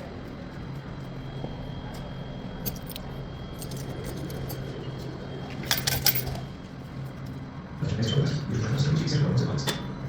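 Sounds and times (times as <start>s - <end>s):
train car hum with high whine: 0.0s - 10.0s
metallic clinks and rattles: 2.6s - 4.7s, 5.6s - 6.5s.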